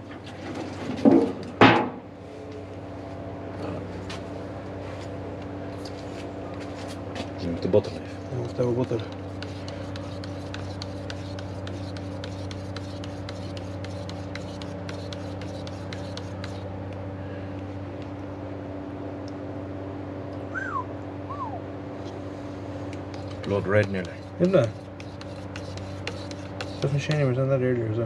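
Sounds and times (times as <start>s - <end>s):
steady machine hum: 0.0s - 28.0s
short high falling whines: 20.4s - 21.8s.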